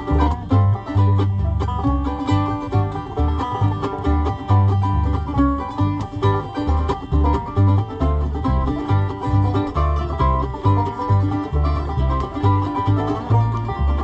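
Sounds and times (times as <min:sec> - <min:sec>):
banjo picking: 0:00.0 - 0:14.0
bass notes: 0:00.0 - 0:14.0
strummed guitar: 0:00.0 - 0:14.0.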